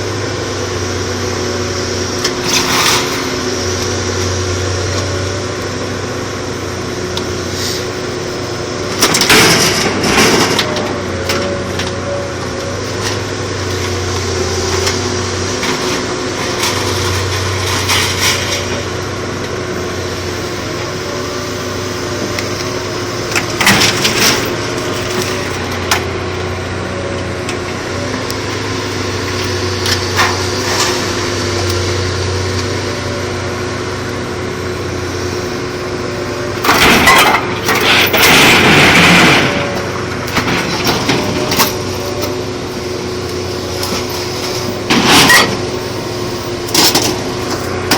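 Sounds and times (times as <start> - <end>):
loud cracking crashes: 36.6 - 41.8.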